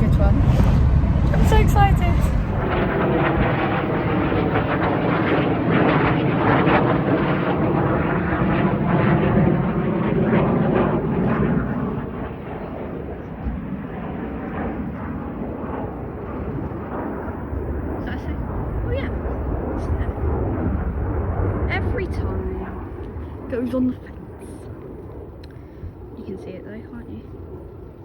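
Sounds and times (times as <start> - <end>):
fighter jet passing low: 0.0 - 28.0.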